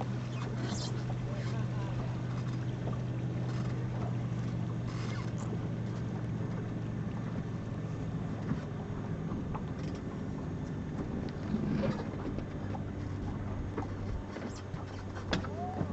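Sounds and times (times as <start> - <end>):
boat engine humming: 0.0 - 15.9
water noise: 0.0 - 15.9
wind: 0.0 - 15.9.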